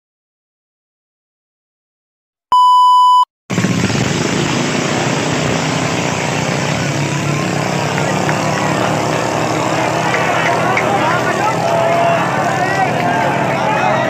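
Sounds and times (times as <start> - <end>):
short electronic beep: 2.5 - 3.3
racing boat engines passing: 3.5 - 14.0.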